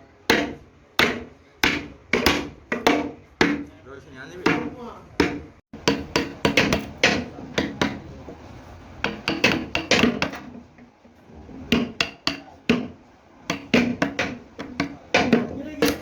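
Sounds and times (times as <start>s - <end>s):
sharp knocks and clatters: 4.5s - 8.4s, 9.0s - 10.9s, 11.6s - 16.0s.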